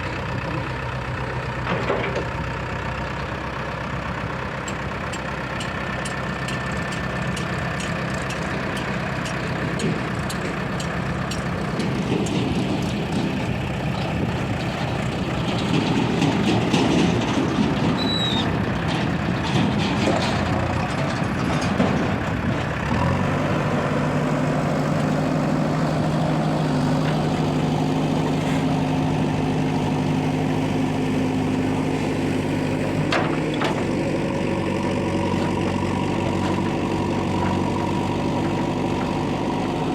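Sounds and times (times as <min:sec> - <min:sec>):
diesel engines running: 0:00.0 - 0:39.9
machine rattling and clatter: 0:06.5 - 0:22.8.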